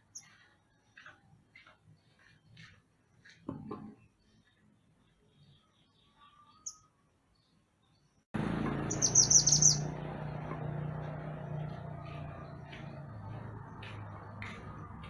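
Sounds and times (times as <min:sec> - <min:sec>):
bird singing high chirps: 0:04.4 - 0:08.2, 0:08.8 - 0:10.0.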